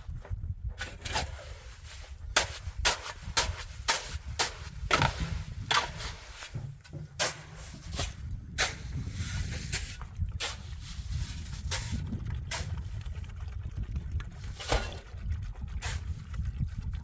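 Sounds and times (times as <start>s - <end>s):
low rumble: 3.7s - 17.0s.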